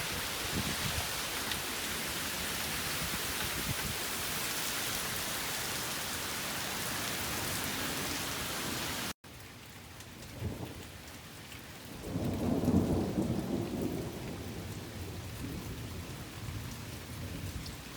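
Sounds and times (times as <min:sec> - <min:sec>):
low rumble of thunder: 0:10.2 - 0:11.0, 0:11.8 - 0:17.9.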